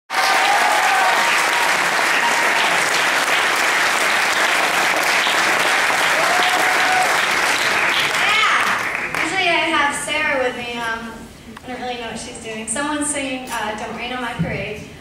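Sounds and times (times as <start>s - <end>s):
cheers and whoops: 0.1s - 3.0s, 6.0s - 7.3s
audience applauding: 0.1s - 9.3s.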